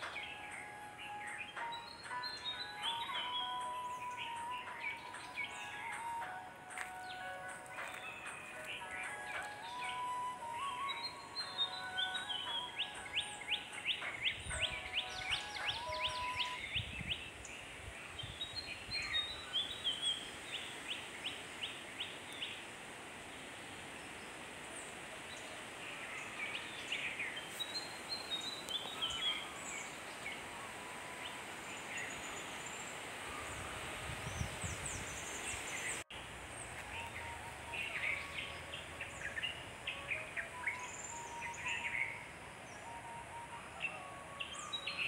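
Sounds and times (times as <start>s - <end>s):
birds singing and chirping: 0.0s - 22.6s, 24.8s - 45.0s
steady hiss: 0.0s - 45.0s.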